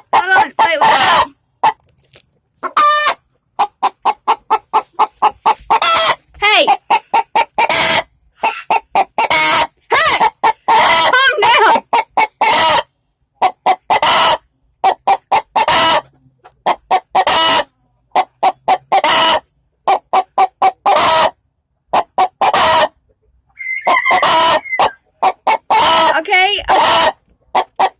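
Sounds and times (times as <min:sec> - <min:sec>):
hen cackling: 0:00.0 - 0:01.8, 0:02.6 - 0:21.4, 0:22.0 - 0:27.9.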